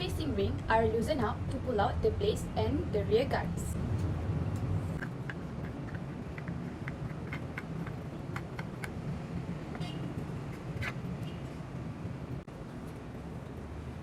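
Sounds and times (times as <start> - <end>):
steady low hum: 0.0 - 14.0
plastic fan parts clicking: 4.0 - 11.3.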